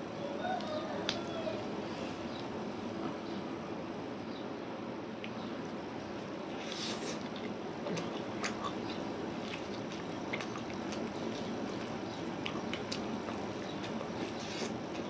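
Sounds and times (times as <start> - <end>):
man chewing: 6.5 - 15.0.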